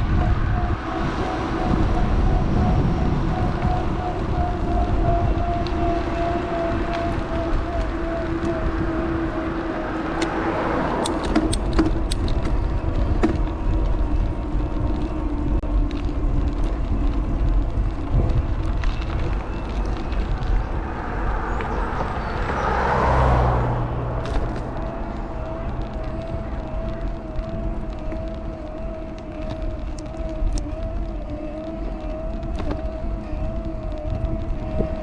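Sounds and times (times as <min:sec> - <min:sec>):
car passing: 0:00.0 - 0:35.0
wind and tyre rumble: 0:00.0 - 0:35.0
sharp ticks and rattles: 0:02.7 - 0:23.3, 0:24.1 - 0:35.0
electric motor whine: 0:24.3 - 0:35.0.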